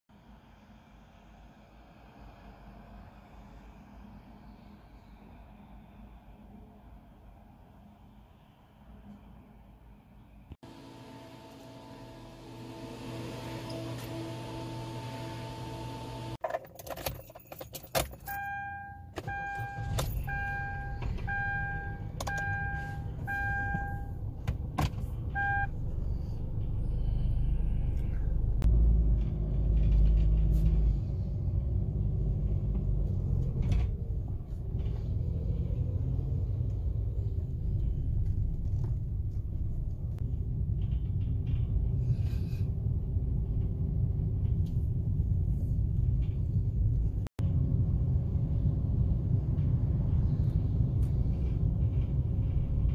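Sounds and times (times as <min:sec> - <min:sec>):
road noise: 0:00.1 - 0:52.9
clicks and key rattles: 0:16.4 - 0:18.4
car warning chime beeping: 0:18.3 - 0:24.2, 0:25.3 - 0:25.7
low engine rumble: 0:19.2 - 0:52.9.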